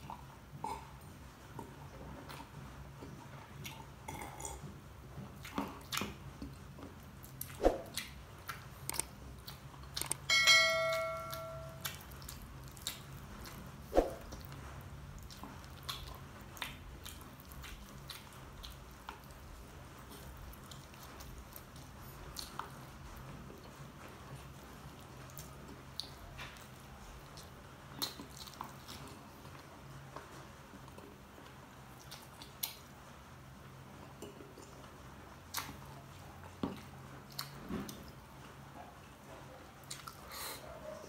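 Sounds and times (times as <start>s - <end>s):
chewing and mouth smacks: 0.0s - 10.3s, 11.8s - 33.0s, 34.0s - 38.2s, 39.7s - 40.6s
short ringing chime: 10.3s - 11.8s.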